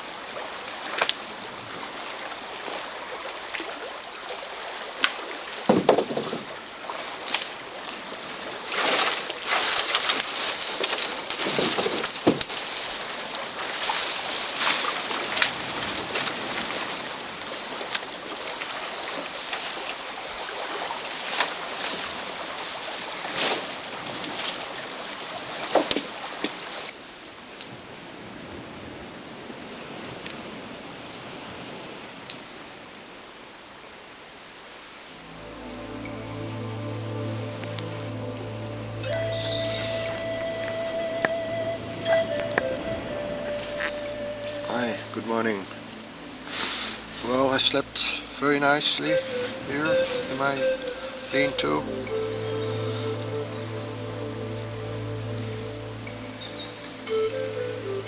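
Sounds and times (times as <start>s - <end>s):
water sloshing and splashing: 2.4s - 26.8s.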